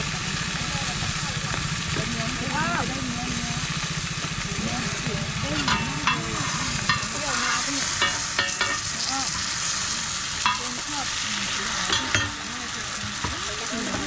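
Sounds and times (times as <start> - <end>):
flatbread sizzling in oil: 0.0 - 14.0.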